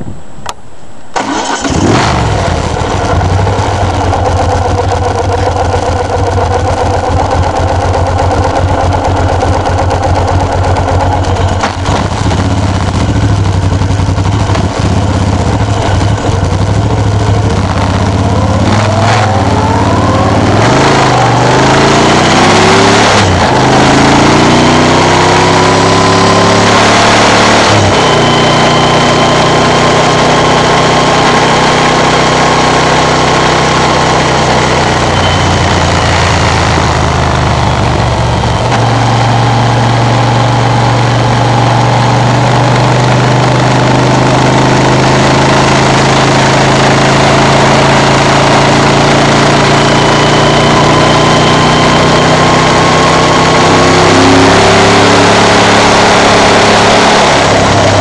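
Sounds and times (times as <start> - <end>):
motorcycle engine revving: 1.2 - 58.0
motorcycle engine idling: 2.4 - 21.7, 34.5 - 42.4.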